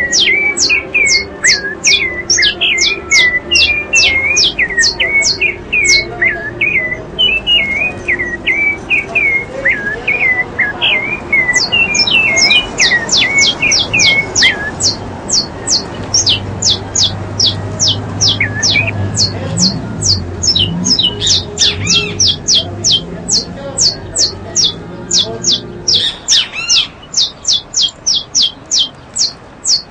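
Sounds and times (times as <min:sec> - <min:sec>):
high falling bird notes: 0:00.0 - 0:29.9
low hooked bird chirps: 0:00.0 - 0:29.9.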